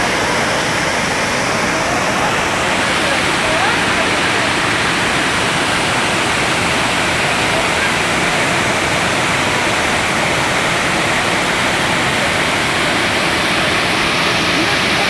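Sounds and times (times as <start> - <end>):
waterfall pouring: 0.0 - 15.0.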